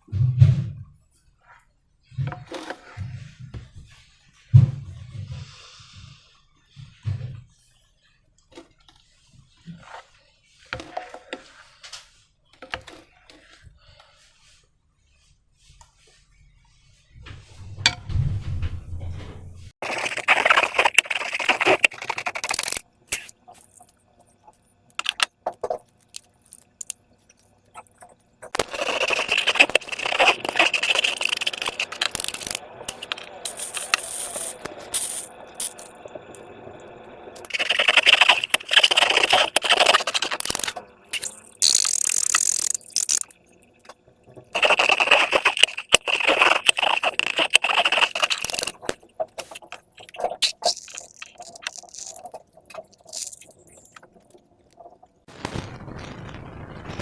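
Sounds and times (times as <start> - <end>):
slime squelching: 19.8 - 36.0, 37.4 - 43.5, 44.5 - 55.1.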